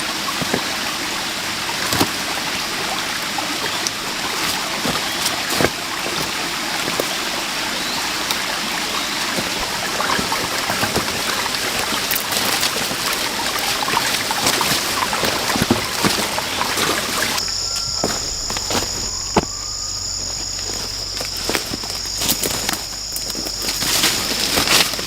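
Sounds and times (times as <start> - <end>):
high insect drone: 0.0 - 25.0
stream running water: 0.0 - 25.0.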